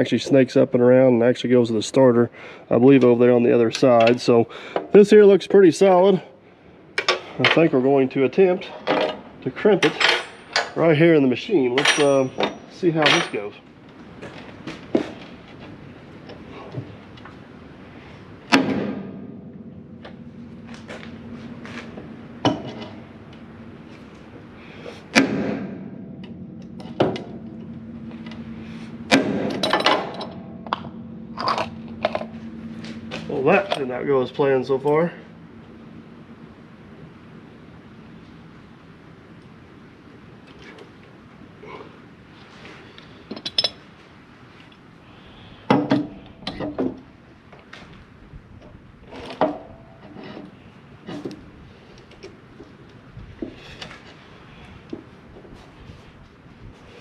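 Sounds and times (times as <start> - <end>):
metal tools clanking: 8.6 - 11.0, 11.6 - 13.6, 26.2 - 35.2, 43.3 - 43.9
hammer striking crimping tool: 25.1 - 32.4.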